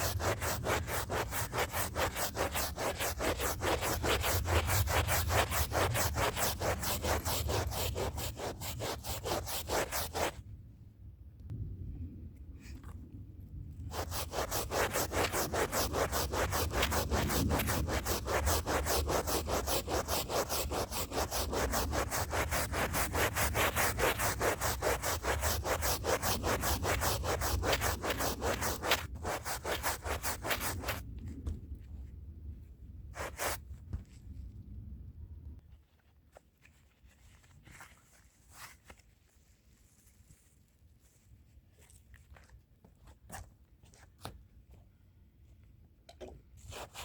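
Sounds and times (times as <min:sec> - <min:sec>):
stiff brush scrubbing a rug: 0:00.0 - 0:10.4, 0:13.9 - 0:31.0, 0:33.2 - 0:33.6, 0:46.6 - 0:47.0.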